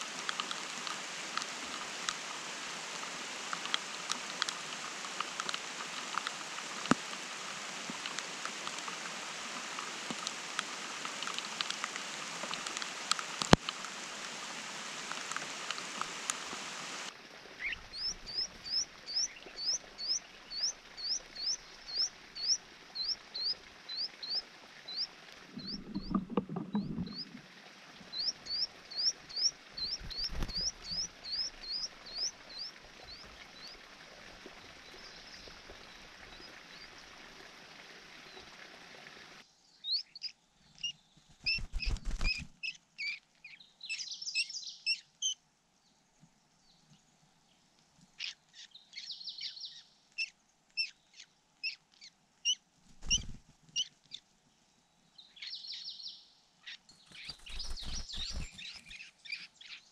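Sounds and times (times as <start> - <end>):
rain pattering: 0.0 - 39.4
nestlings chirping: 28.2 - 32.7, 40.0 - 43.2, 52.5 - 53.9, 57.0 - 59.8
begging chirps and twittering: 28.2 - 33.3, 39.9 - 45.4, 48.2 - 53.9, 57.0 - 59.9.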